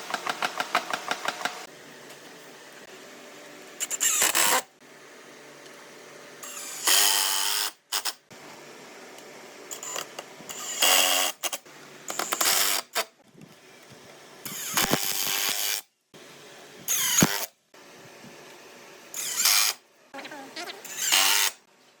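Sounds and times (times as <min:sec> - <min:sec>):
woodworking tools cutting wood: 0:16.9 - 0:17.5, 0:19.2 - 0:19.8, 0:20.8 - 0:21.6.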